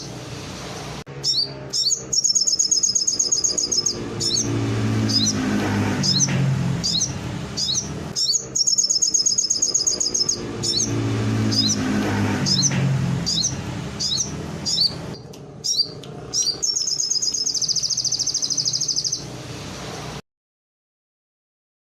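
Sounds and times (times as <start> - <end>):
songbird chirping and trilling: 1.2 - 19.4.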